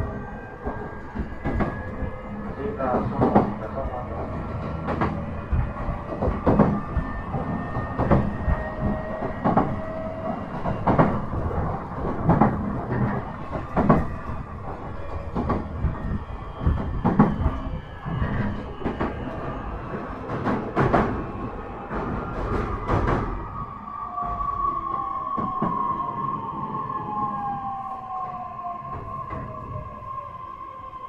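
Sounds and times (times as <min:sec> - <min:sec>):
train rumble inside car: 0:00.0 - 0:30.3
wheel clicks over rail joints: 0:02.7 - 0:19.4.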